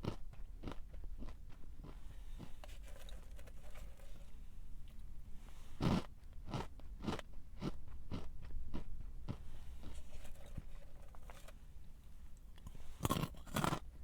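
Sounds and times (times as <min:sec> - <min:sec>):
chewing crunches: 0:00.0 - 0:02.6, 0:05.8 - 0:10.6, 0:12.6 - 0:14.0
biting crunchy snack: 0:13.0 - 0:14.0.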